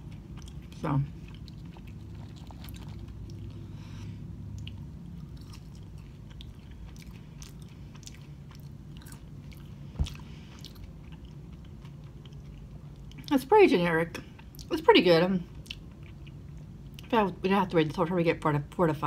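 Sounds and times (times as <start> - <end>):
person chewing fries: 0.0 - 13.3, 15.5 - 17.1.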